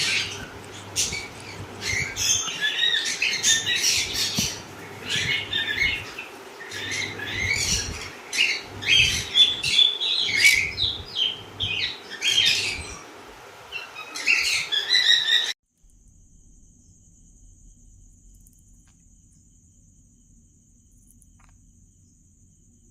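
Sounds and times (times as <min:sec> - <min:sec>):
faint high-pitched whine: 0:15.7 - 0:22.9.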